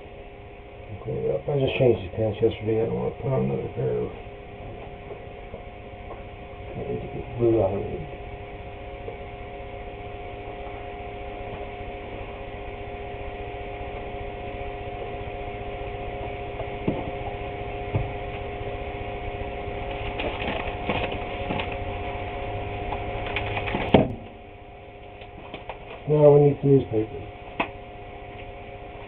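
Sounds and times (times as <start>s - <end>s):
steady tonal hum: 0.0s - 29.0s
clicking and handling noises: 19.9s - 21.8s, 22.9s - 24.0s, 25.2s - 26.1s.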